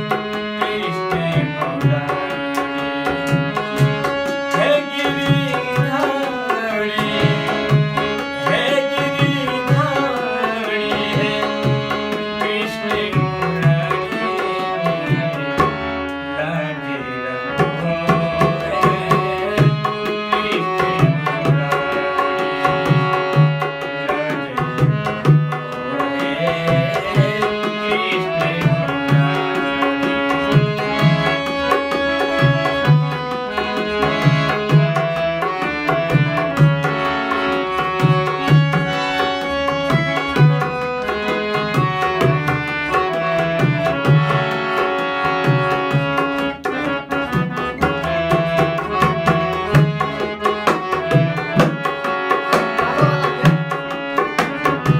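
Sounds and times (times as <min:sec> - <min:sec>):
melody instrument holding notes: 0:00.0 - 0:54.9
tabla playing fast rhythm: 0:00.0 - 0:54.9.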